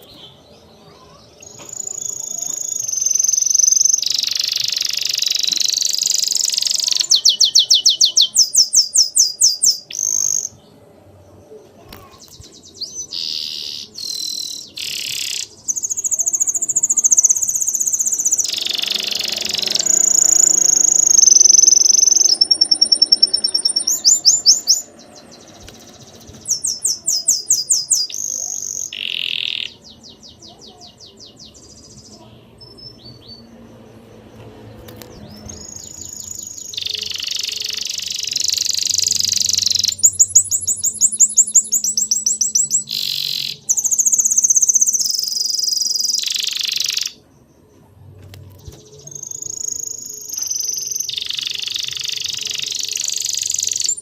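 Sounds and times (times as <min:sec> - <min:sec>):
small songbirds chirping and trilling: 0:00.0 - 0:54.0.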